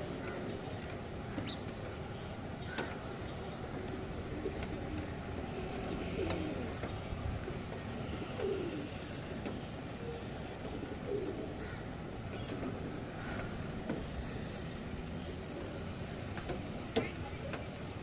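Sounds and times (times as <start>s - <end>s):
rain and wind hiss: 0.0s - 18.0s
pigeon cooing: 4.2s - 6.8s, 8.1s - 9.0s, 10.7s - 11.8s.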